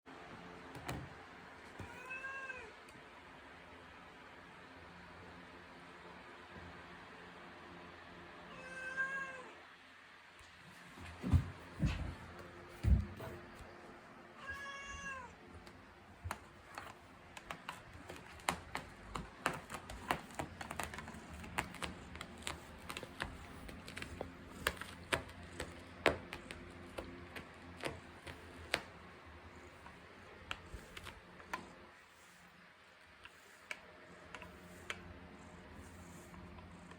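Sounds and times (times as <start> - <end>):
cat meowing: 1.8 - 2.8, 8.5 - 9.6, 14.4 - 15.4
cat claws scratching carpet: 15.6 - 36.9.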